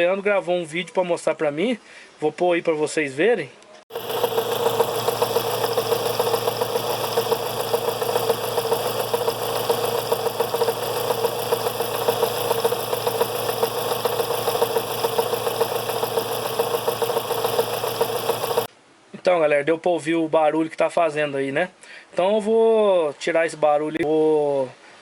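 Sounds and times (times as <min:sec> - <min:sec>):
car engine idling with ticking: 0:03.9 - 0:18.7.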